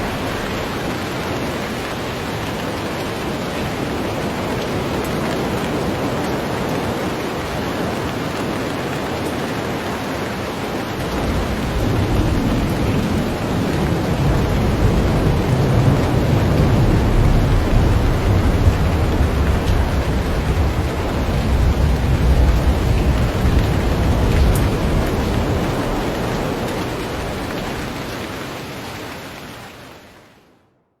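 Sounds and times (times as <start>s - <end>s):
low rumble of thunder: 0.0s - 2.6s, 11.0s - 28.1s
heavy rain pouring: 0.0s - 30.5s.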